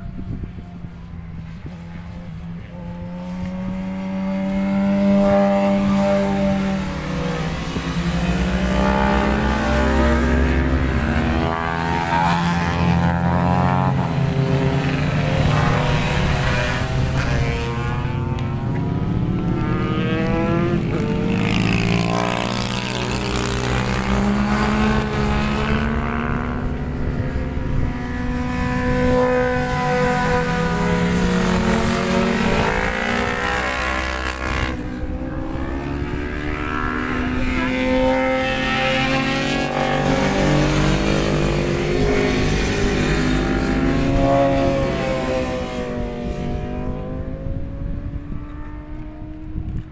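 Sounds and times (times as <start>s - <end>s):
racing motorcycles passing by: 0.0s - 49.9s.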